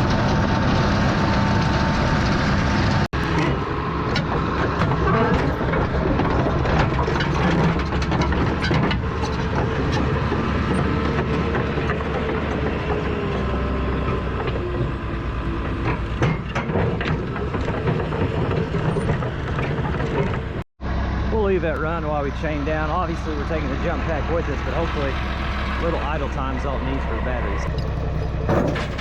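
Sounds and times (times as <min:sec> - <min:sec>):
bulldozer diesel engine running: 0:00.0 - 0:29.0
metallic clanks and knocks: 0:03.2 - 0:20.6, 0:27.6 - 0:29.0.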